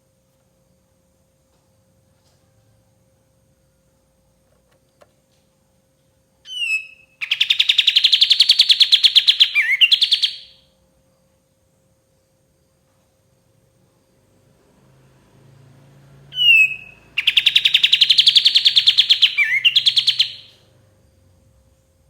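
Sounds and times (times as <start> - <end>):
songbird singing: 6.4 - 10.6, 16.1 - 20.7.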